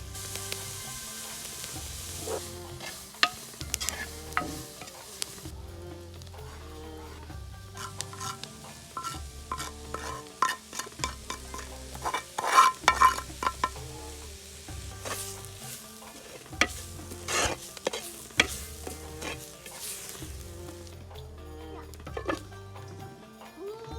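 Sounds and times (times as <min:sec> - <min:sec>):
food sizzling: 0:00.0 - 0:23.7
spoon scraping a pot: 0:00.2 - 0:05.5, 0:06.4 - 0:20.9, 0:22.0 - 0:22.5
spoon knocking against pot: 0:09.0 - 0:13.9.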